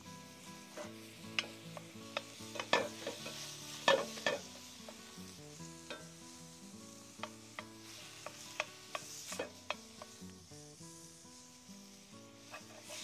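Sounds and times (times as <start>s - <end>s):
meat sizzling in a pan: 0.0s - 13.0s
utensil scraping a pan: 0.6s - 5.0s, 7.2s - 10.1s, 12.4s - 13.0s.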